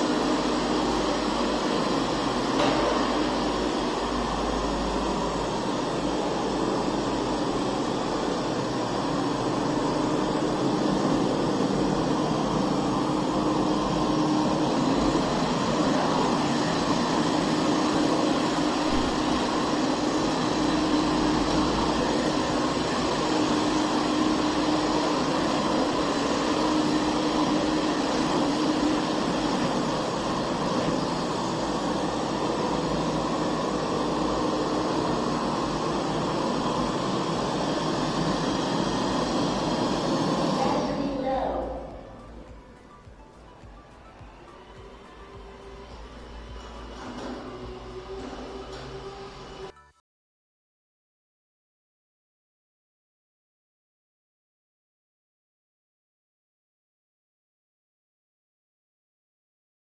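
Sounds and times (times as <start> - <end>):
robot vacuum suction rush: 0.0 - 41.2.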